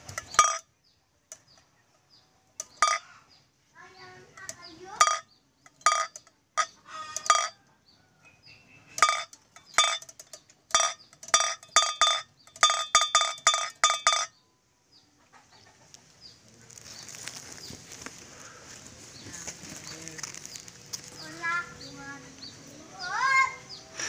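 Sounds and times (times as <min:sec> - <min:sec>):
bamboo kite clacker knocking: 0:04.4 - 0:07.6, 0:09.0 - 0:14.3.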